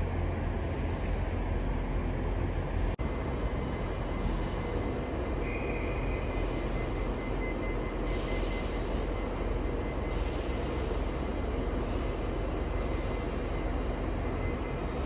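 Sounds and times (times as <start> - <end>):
train rumbling: 0.0 - 15.0
faint high whine: 3.0 - 11.6.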